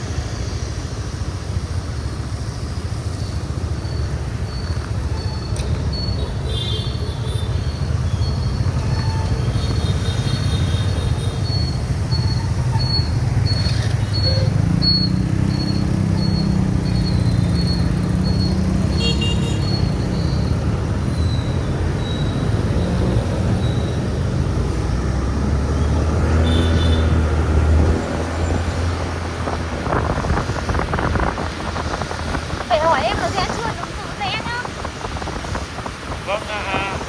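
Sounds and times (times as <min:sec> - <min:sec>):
road and wind noise: 0:00.0 - 0:37.0
traffic engines: 0:00.0 - 0:37.0
vehicle horns tooting: 0:18.8 - 0:20.0, 0:26.3 - 0:27.4.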